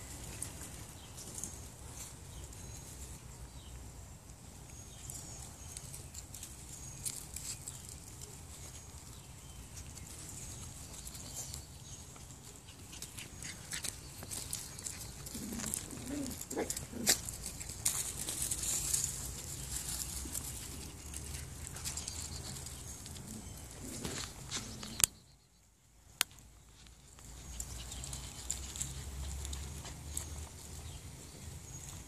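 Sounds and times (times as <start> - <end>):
puppy paws clicking and pattering: 0.1 - 3.1, 4.3 - 25.1, 26.2 - 32.0
puppies whining: 10.4 - 25.1.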